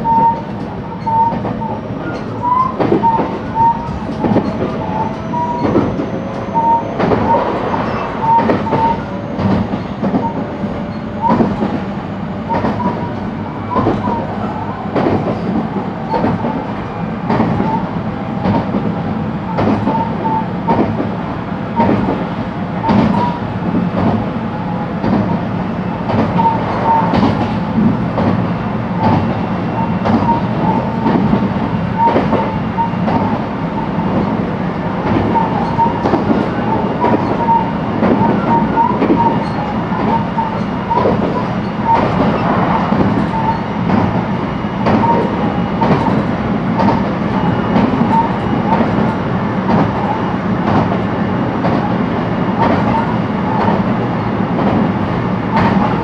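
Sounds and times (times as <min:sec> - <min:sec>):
rail-joint clicks: 0:00.0 - 0:56.0
train wheels rumbling on rail: 0:00.0 - 0:56.0
short squeaks: 0:00.1 - 0:11.6, 0:29.8 - 0:31.0, 0:35.3 - 0:36.3, 0:37.0 - 0:42.6.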